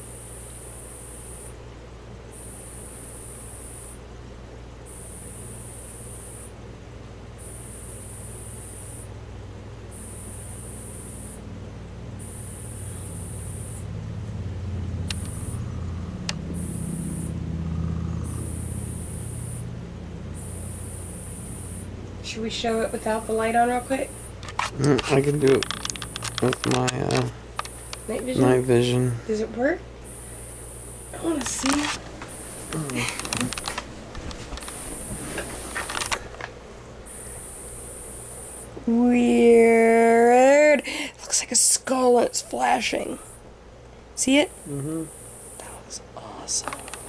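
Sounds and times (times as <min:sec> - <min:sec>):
ceiling fan humming: 0:00.0 - 0:47.0
high-pitched electronic whine: 0:04.8 - 0:06.6, 0:07.4 - 0:09.2, 0:09.9 - 0:36.2, 0:44.2 - 0:45.8
sharp clicks: 0:15.0 - 0:16.8, 0:24.4 - 0:28.1, 0:31.1 - 0:34.8, 0:35.7 - 0:36.5, 0:46.6 - 0:47.0.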